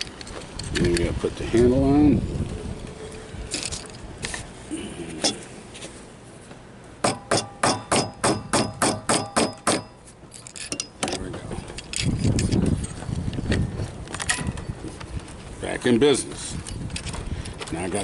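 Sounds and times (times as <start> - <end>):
hammer tapping on metal: 7.0 - 10.0.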